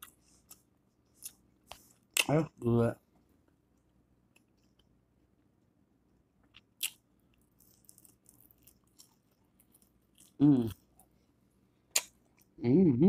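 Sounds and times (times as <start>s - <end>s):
person chewing: 6.4s - 11.2s, 11.9s - 12.6s.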